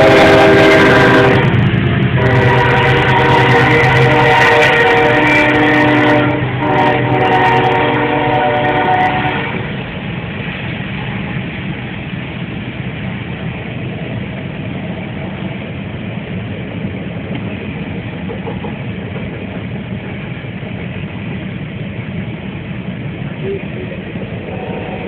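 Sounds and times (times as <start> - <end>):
locomotive horn chord: 0.0 - 1.6, 2.2 - 9.6, 24.4 - 25.0
passing train rumble: 0.0 - 25.0.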